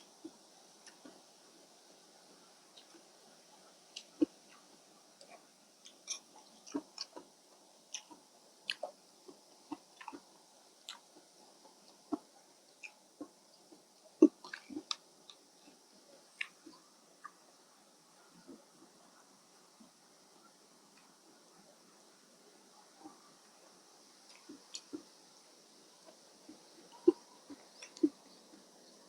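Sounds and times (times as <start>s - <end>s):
person chewing food: 0.8s - 1.2s, 3.9s - 15.8s, 16.4s - 17.4s, 24.2s - 25.2s, 26.0s - 29.0s.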